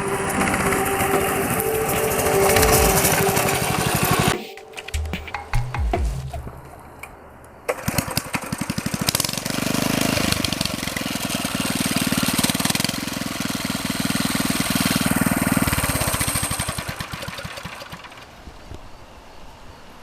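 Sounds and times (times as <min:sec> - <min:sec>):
small motorbike engine running: 0:08.5 - 0:18.4.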